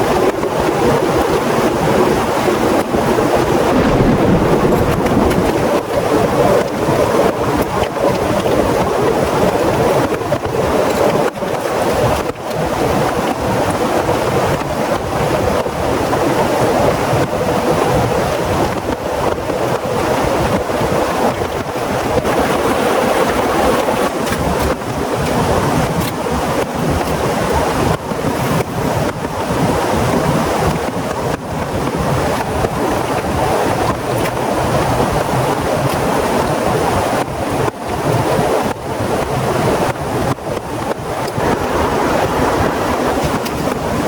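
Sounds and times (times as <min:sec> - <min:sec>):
heavy rain pouring: 0:02.7 - 0:10.1, 0:40.2 - 0:44.0.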